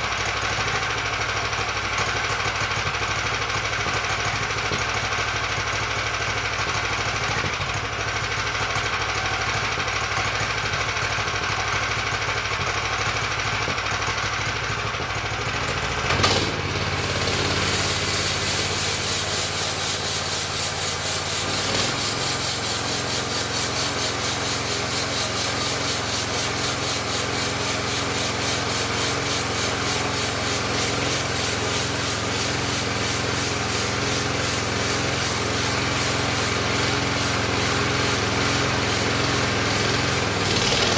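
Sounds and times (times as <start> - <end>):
sawmill engine running: 15.0 - 40.9
bandsaw blade rasping through log: 16.1 - 40.9.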